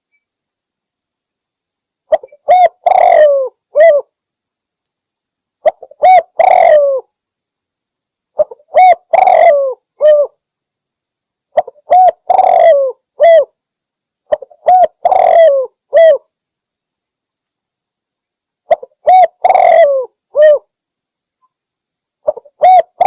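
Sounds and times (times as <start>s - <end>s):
dove cooing: 2.1s - 4.1s, 5.6s - 7.1s, 8.4s - 10.4s, 11.6s - 13.5s, 14.3s - 16.3s, 18.7s - 20.7s, 22.2s - 23.0s.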